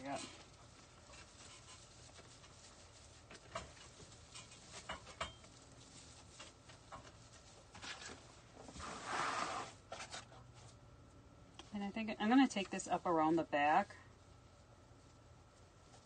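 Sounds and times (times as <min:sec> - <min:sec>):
rustling of greenery: 0:00.0 - 0:10.8.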